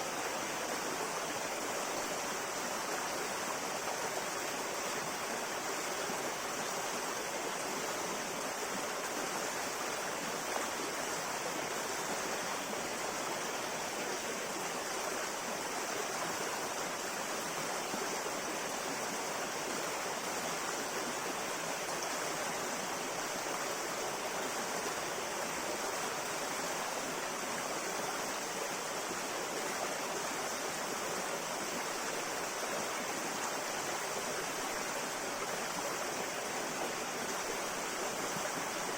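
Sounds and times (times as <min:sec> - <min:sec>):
river flowing: 0:00.0 - 0:38.9.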